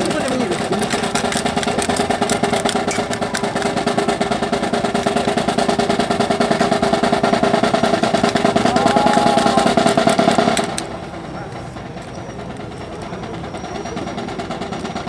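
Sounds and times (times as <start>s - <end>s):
engine drone: 1.2s - 11.8s
snare drum roll: 3.6s - 10.8s.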